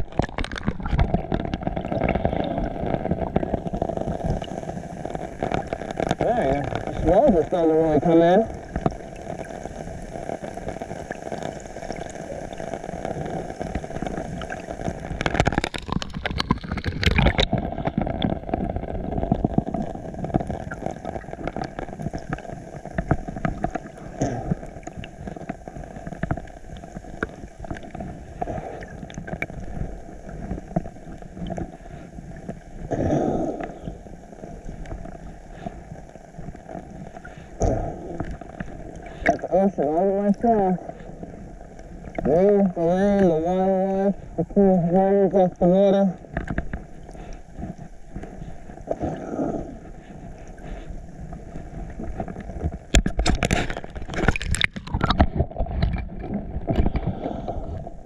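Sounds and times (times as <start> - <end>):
water splashing: 0.0 - 58.0
ocean water sloshing: 46.1 - 58.0.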